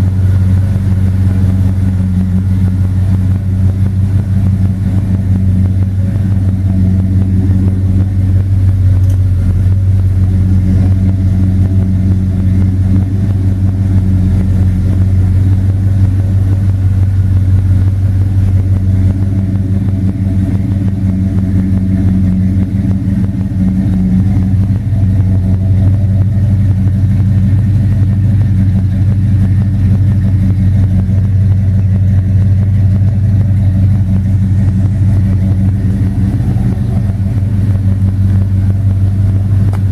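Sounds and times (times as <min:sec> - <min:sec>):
car engine running steadily: 0:00.0 - 0:39.9.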